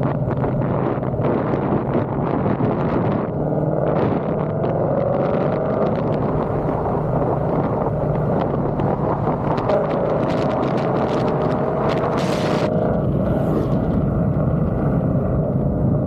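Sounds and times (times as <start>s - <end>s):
car exhaust drone: 0.0s - 16.0s.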